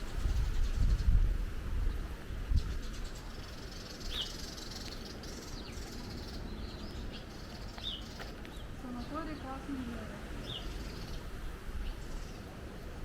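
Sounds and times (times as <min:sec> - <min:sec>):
wind rumble on microphone: 0:00.0 - 0:05.0, 0:05.6 - 0:13.0
bird chirping: 0:02.5 - 0:12.5.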